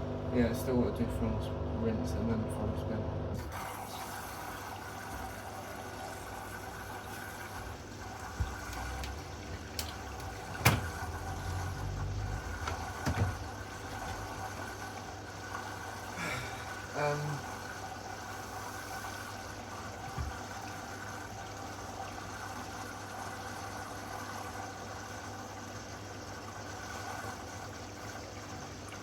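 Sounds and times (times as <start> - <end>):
drain pump humming: 0.0 - 29.0
sharp knocks from washing machine: 8.2 - 11.3, 12.5 - 14.8, 20.0 - 20.6.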